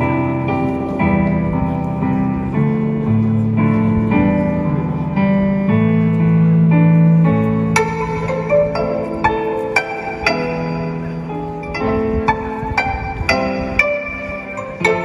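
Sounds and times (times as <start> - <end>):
plucked zither melody: 7.0 - 15.0.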